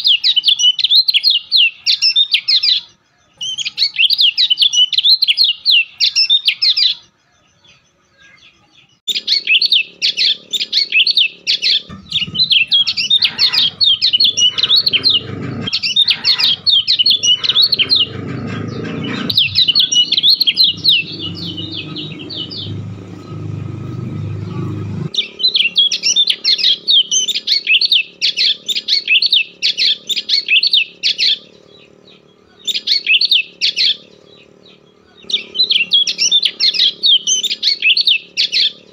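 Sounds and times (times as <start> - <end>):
bird chirping: 0.0 - 38.9
low rumbling noise: 9.6 - 27.2.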